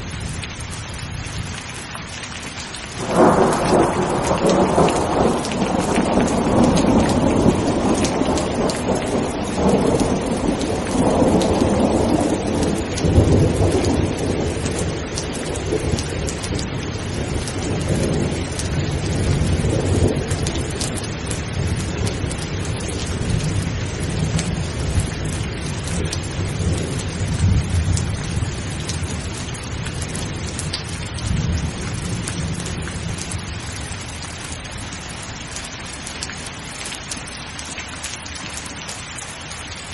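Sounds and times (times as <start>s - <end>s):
heavy rain pattering: 0.0s - 39.9s
rolling thunder: 3.0s - 34.1s.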